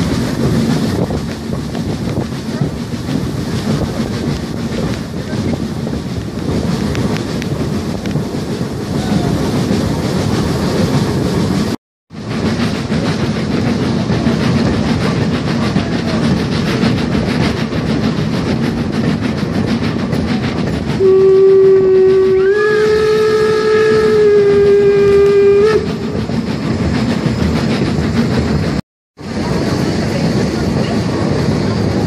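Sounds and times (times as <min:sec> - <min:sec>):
train carriages clattering on track: 0:00.0 - 0:32.0
locomotive horn signal: 0:21.0 - 0:25.9.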